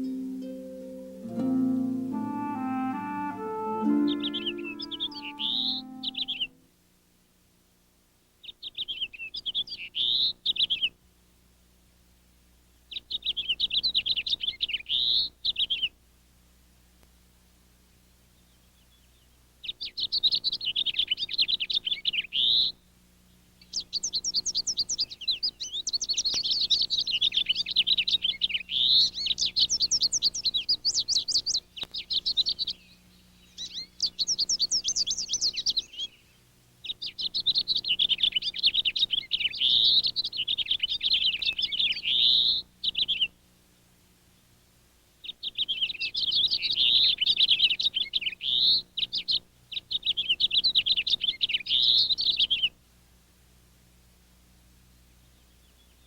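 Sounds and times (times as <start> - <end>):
songbird warbling: 0.0 - 6.6, 12.9 - 15.9, 18.4 - 22.8, 23.6 - 43.3, 45.2 - 52.7.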